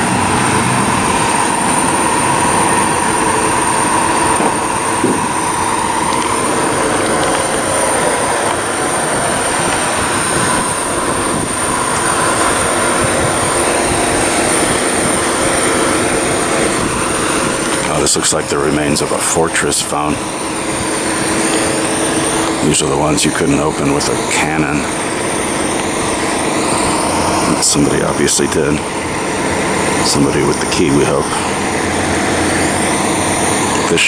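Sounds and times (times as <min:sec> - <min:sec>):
train passing: 0:00.0 - 0:34.0.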